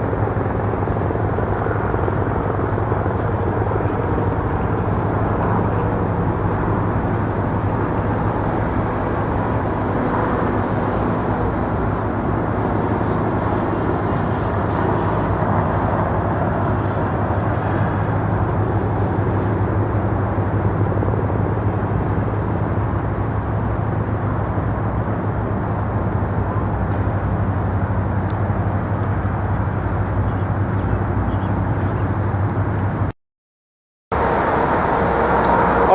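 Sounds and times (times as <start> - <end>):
helicopter drone: 0.0 - 33.1, 34.2 - 35.9.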